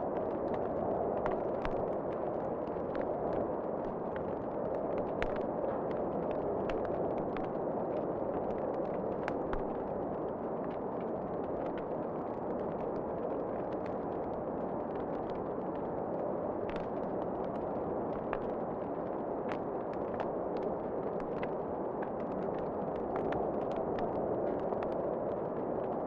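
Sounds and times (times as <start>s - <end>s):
wood fire crackling and popping: 0.2s - 26.0s.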